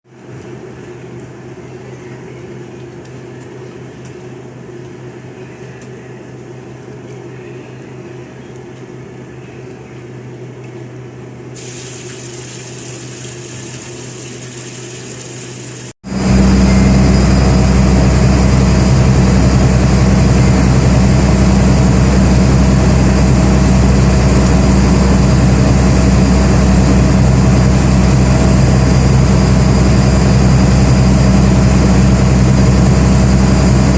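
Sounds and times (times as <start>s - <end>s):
boat engine drone: 11.6s - 33.9s.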